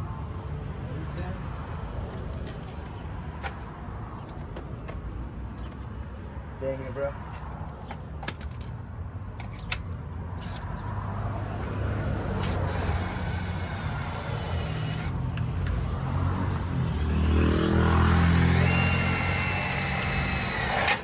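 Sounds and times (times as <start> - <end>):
power drill boring through metal: 12.2 - 15.2, 16.9 - 21.0.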